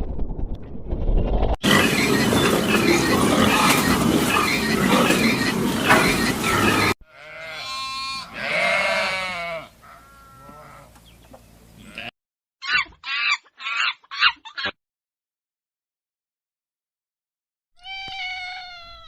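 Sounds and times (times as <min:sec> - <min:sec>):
animal bleat-like call: 0:06.4 - 0:10.9, 0:11.8 - 0:12.1.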